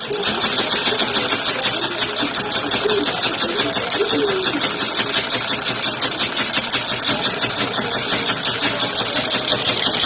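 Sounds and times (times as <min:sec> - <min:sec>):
sewing machine clattering: 0:00.0 - 0:10.0.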